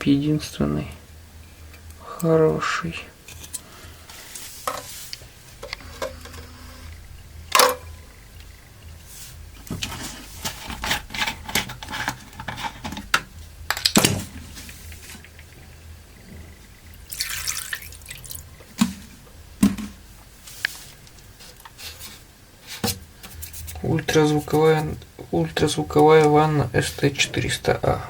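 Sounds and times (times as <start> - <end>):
liquid hissing: 17.0 - 18.5
water dripping and splashing: 17.0 - 18.5.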